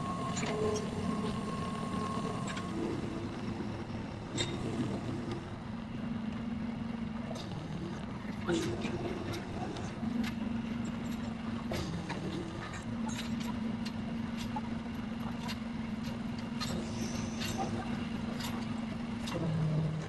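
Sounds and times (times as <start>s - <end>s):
motor humming: 0.0s - 5.8s.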